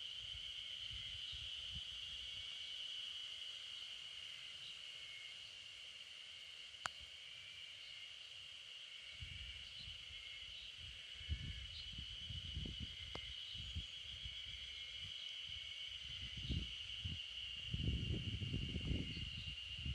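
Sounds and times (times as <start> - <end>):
high-pitched insect drone: 0.0 - 19.9
faint chirps: 9.2 - 19.9.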